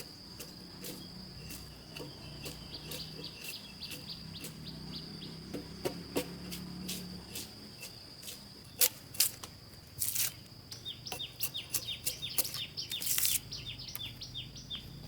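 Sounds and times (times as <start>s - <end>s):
irregular chirps and ticks: 0.0s - 6.3s, 10.1s - 15.0s
insects trilling: 0.0s - 15.0s.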